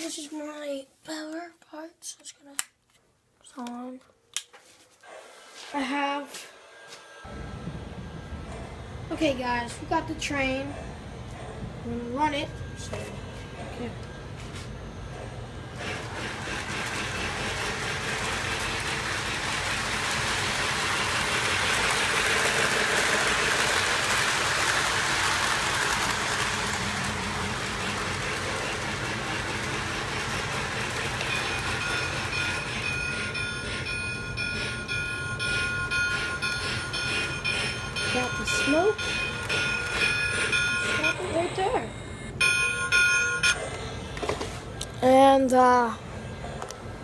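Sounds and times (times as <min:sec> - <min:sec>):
model train whirring on rails: 0:14.8 - 0:43.5.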